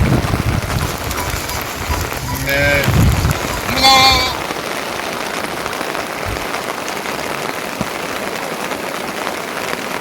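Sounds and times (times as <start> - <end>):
steady rain: 0.0 - 10.0.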